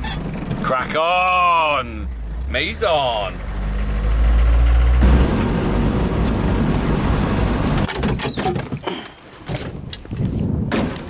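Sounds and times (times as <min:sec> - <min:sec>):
vehicle engine rumble: 0:00.0 - 0:08.7
knocks and rattles: 0:07.8 - 0:11.0.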